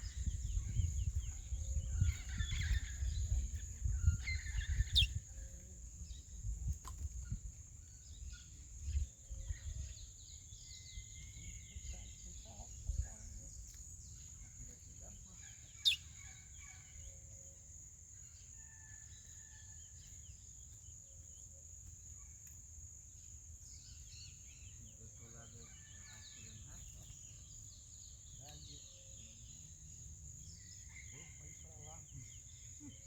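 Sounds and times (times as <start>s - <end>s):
small birds chirping: 0.0s - 17.6s, 23.2s - 33.0s
sharp loud bird chirp: 4.3s - 5.2s.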